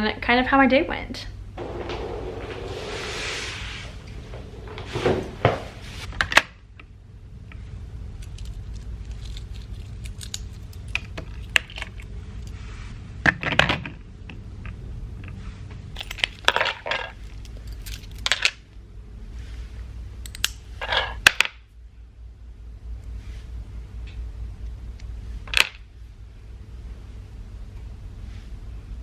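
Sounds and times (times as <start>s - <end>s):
steady low hum: 0.0s - 29.0s
short rustling scrapes: 1.6s - 6.1s, 19.3s - 19.8s.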